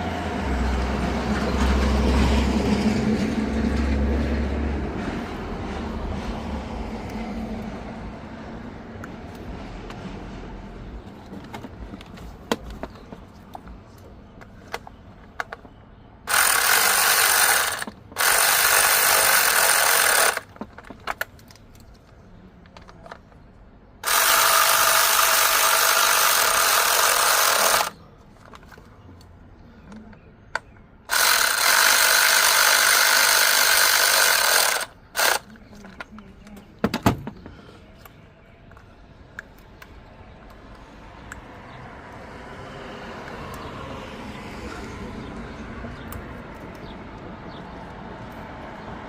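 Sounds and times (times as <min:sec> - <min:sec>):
power tool running: 0:16.3 - 0:20.6, 0:24.0 - 0:28.0, 0:31.1 - 0:35.5
light clicks and handling noises: 0:20.5 - 0:23.7, 0:35.5 - 0:41.4.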